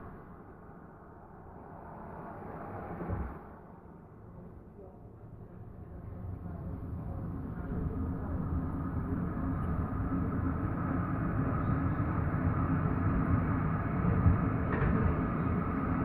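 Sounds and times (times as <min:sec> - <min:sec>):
tram wheels rumbling on rails: 0:06.2 - 0:16.0.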